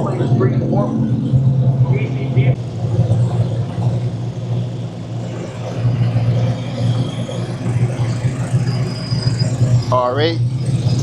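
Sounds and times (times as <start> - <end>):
car engines idling: 0.0 - 11.0.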